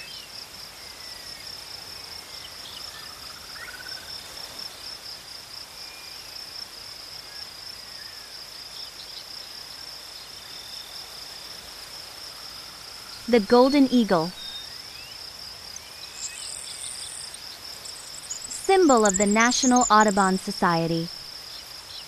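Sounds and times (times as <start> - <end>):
high-pitched insect trill: 14.3 - 22.0.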